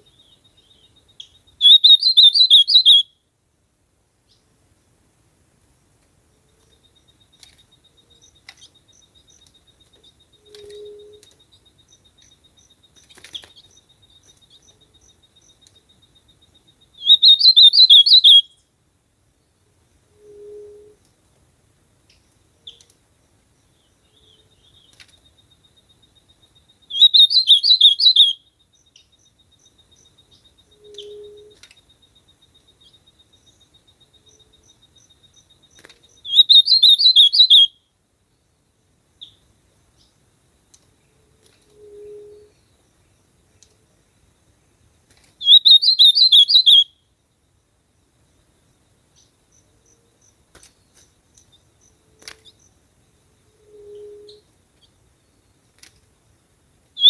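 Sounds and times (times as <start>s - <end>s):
bird singing warbled phrases: 0.0s - 3.2s, 6.6s - 18.6s, 23.6s - 37.9s, 45.4s - 47.0s.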